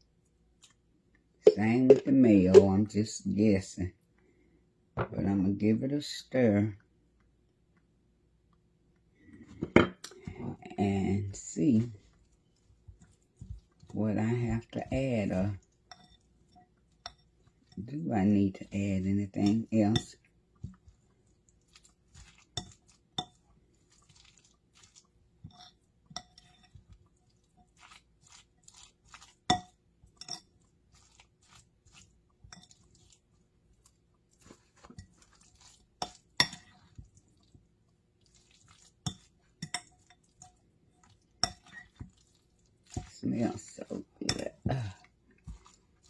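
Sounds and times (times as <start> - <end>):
spoon scraping a mixing bowl: 11.3 - 37.6, 38.2 - 46.0.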